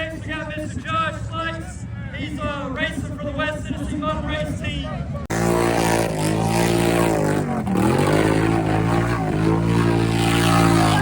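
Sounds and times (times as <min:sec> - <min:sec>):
atv engine at high revs: 0:05.3 - 0:11.0.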